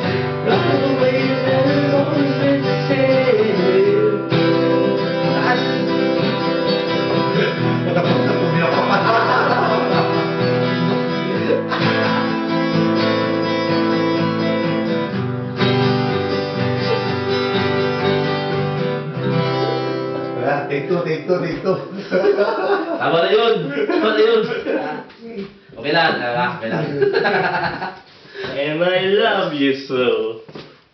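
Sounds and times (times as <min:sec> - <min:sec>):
acoustic guitar strumming chords: 0:00.0 - 0:22.2.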